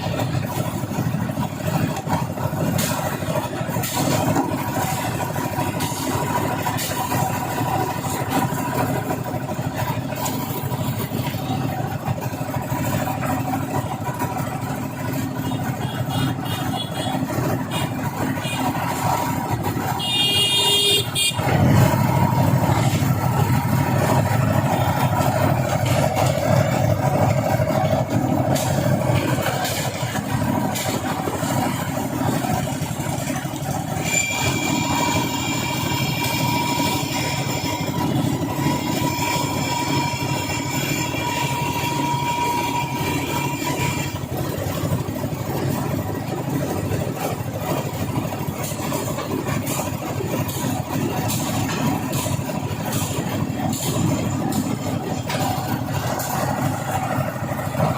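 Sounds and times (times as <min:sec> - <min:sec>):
traffic engines running: 0:00.0 - 0:57.9
vehicle horn: 0:15.4 - 0:18.7, 0:19.9 - 0:21.7.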